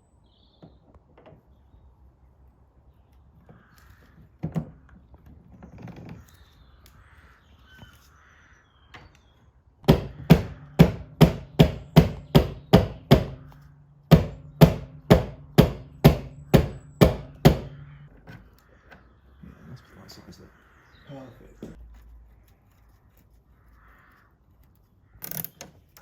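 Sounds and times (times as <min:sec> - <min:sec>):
hammer blows ringing: 0:09.8 - 0:18.0.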